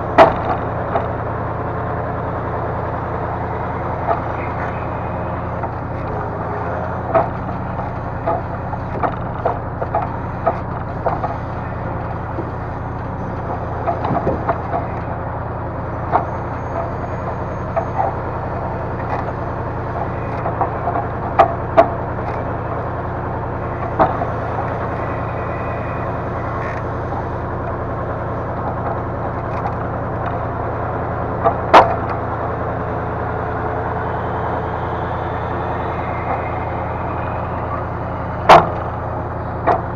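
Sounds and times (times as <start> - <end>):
diesel engine running: 0.0 - 39.9
wooden log clunks and knocks: 13.8 - 15.0, 31.4 - 32.2.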